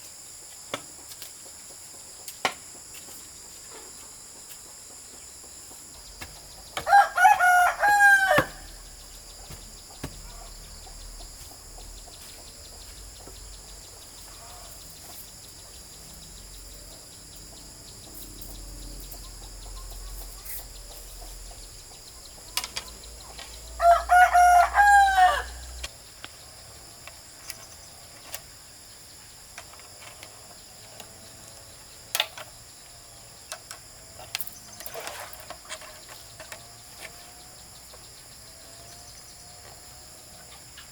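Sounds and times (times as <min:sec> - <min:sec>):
high-pitched insect chorus: 0:00.0 - 0:40.9
rooster crowing: 0:06.8 - 0:09.0, 0:23.7 - 0:25.8.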